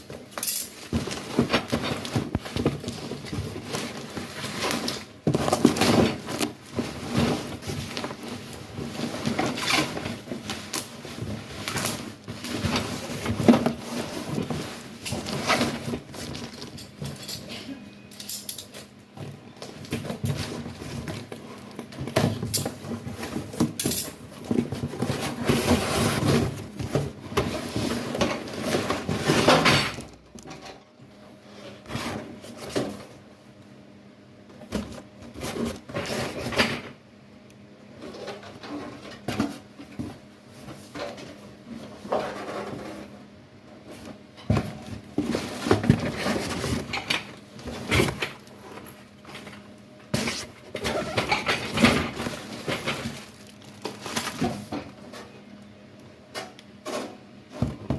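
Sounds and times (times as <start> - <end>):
packaging rustling: 52.0 - 54.7.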